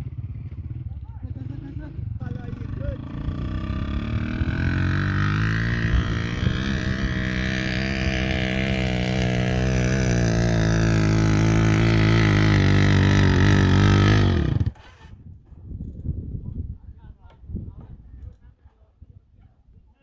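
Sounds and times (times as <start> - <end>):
motorcycle engine running: 0.0 - 15.1.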